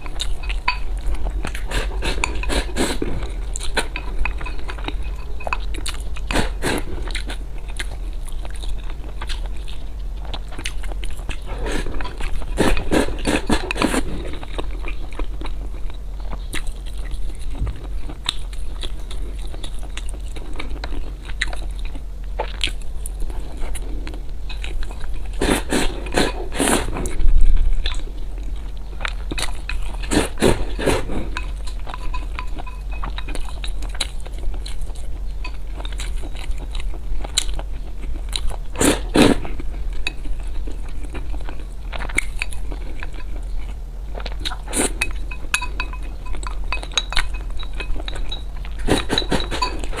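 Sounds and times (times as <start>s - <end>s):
utensils clinking on dishes: 0.0s - 7.2s, 11.6s - 14.4s, 29.6s - 33.7s, 44.8s - 50.0s
crunching and chewing food: 0.0s - 50.0s.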